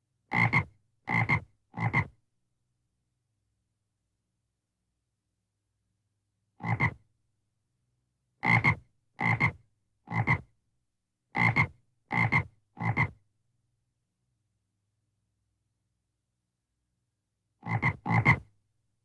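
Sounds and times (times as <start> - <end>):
frog croaking: 17.6 - 18.4.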